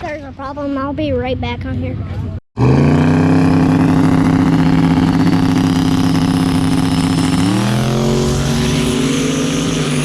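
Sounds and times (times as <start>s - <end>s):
race car engine at high revs: 2.6s - 10.0s.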